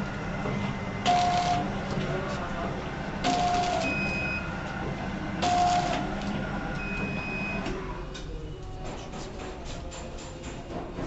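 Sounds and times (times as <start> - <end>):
machine hum: 0.0 - 8.8
packing machine clacking: 3.2 - 4.0, 5.4 - 7.1.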